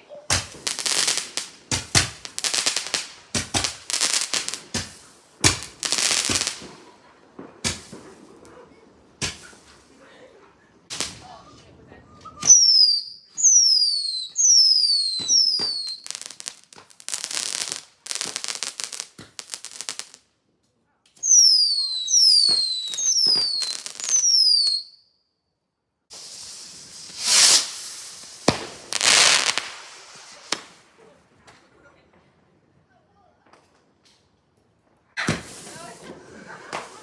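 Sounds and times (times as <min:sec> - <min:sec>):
whistling firework shots: 0:00.3 - 0:08.4, 0:09.2 - 0:09.8, 0:10.9 - 0:11.6, 0:12.2 - 0:20.2, 0:21.2 - 0:25.0, 0:26.1 - 0:30.9, 0:35.2 - 0:37.0
hissing firework bursts: 0:00.3 - 0:08.5, 0:09.2 - 0:10.0, 0:10.9 - 0:11.4, 0:12.4 - 0:20.2, 0:21.2 - 0:24.8, 0:26.1 - 0:31.0, 0:35.2 - 0:37.0
crackling firework bangs: 0:00.3 - 0:10.0, 0:10.9 - 0:11.4, 0:12.4 - 0:20.2, 0:21.2 - 0:24.8, 0:26.1 - 0:31.0, 0:35.2 - 0:37.0.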